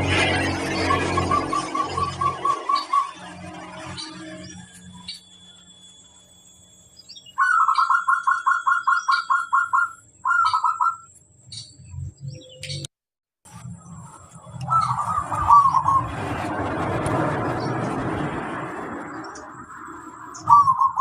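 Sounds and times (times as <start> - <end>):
rushing noise: 13.5 - 21.0
dove cooing: 14.7 - 16.1, 20.4 - 21.0.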